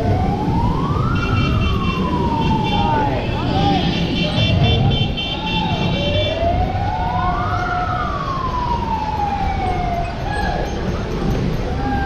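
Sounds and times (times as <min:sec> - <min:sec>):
siren wailing: 0:00.0 - 0:04.0, 0:05.3 - 0:10.8.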